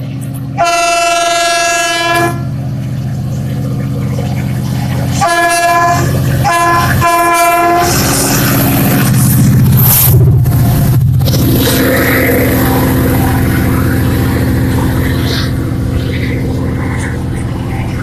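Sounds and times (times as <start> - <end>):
low train rumble: 0.0 - 18.0
train horn blasts: 0.6 - 2.5, 5.1 - 8.7.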